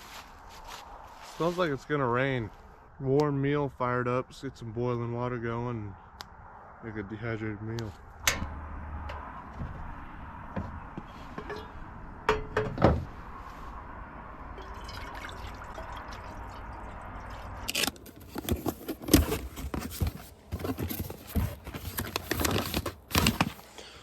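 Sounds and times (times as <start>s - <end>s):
packaging crinkling and rustling: 17.7s - 23.7s.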